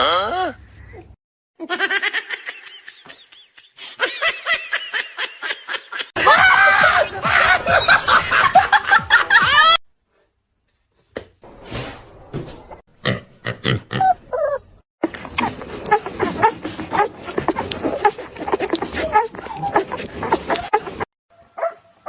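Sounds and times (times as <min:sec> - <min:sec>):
people laughing: 0:02.0 - 0:09.8.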